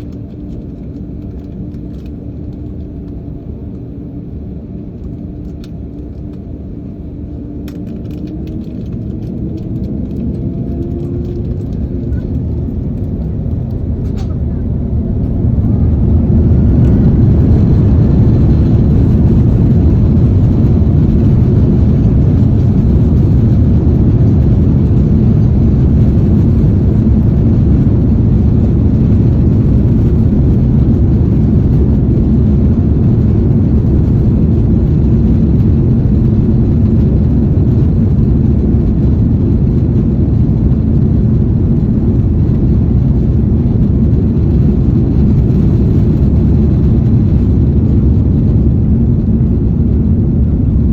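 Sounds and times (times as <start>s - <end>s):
jet engines roaring: 0.0s - 50.9s.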